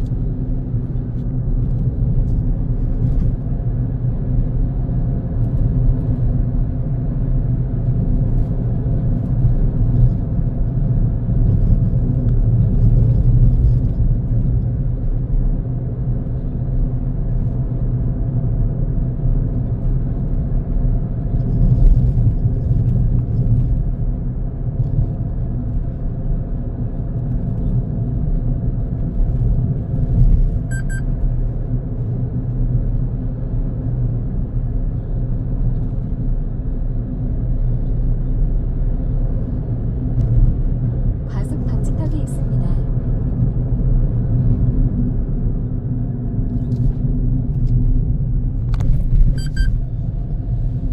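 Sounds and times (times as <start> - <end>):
car engine and tyre rumble: 0.0 - 50.9
brief beep: 30.7 - 31.1, 49.3 - 49.8.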